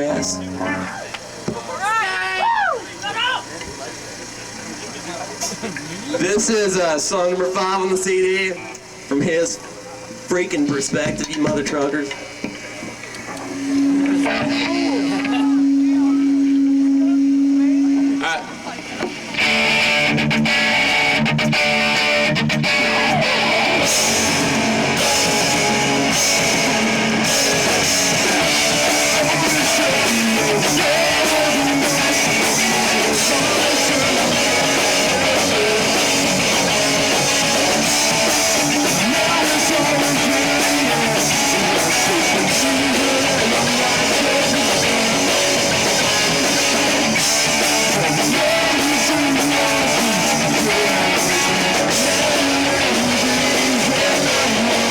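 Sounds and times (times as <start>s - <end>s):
live rock band playing: 0.0s - 2.0s, 13.5s - 18.5s, 19.2s - 54.9s
distorted electric guitars: 0.0s - 54.9s.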